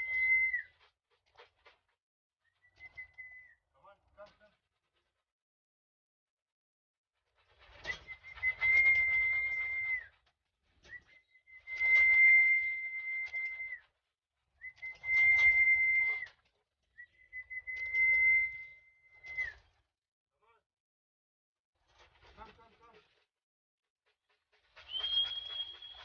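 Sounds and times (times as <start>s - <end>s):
long high-pitched whistles: 0.0s - 0.9s, 7.9s - 10.2s, 10.9s - 13.9s, 14.6s - 16.4s, 17.0s - 19.7s, 24.8s - 26.0s
rustling noise: 7.2s - 14.0s, 21.8s - 23.3s, 24.0s - 26.0s.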